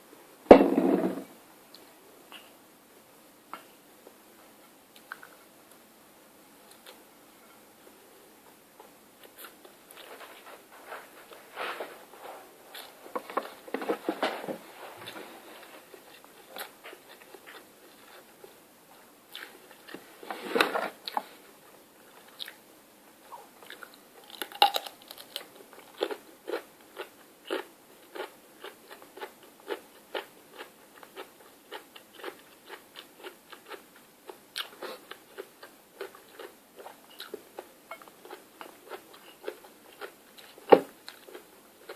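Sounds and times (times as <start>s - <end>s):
person chewing crunchy food: 23.6s - 41.9s.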